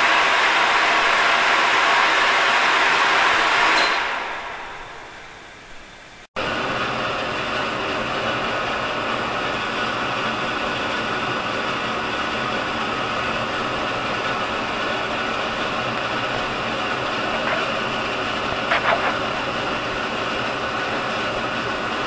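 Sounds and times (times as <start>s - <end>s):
appliance motor humming: 6.4s - 22.0s.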